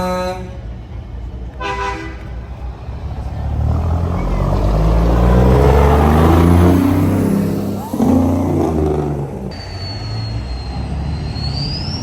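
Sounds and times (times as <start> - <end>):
truck air horn blasts: 0.0 - 0.7, 1.6 - 2.5
truck engine rumble: 0.0 - 12.0.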